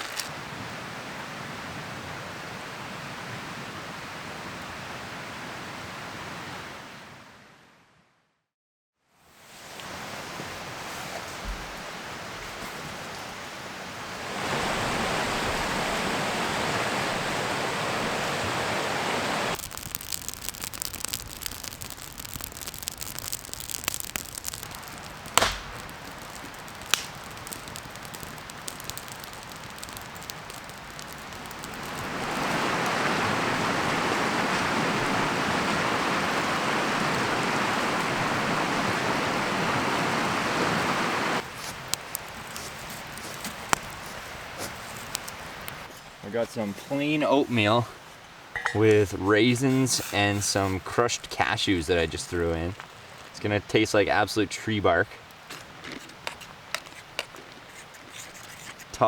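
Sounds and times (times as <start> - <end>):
small crackles and clicks: 0.0 - 0.3, 19.5 - 33.4, 41.4 - 46.0, 49.8 - 59.0
river water rushing: 9.5 - 19.6, 23.6 - 41.6.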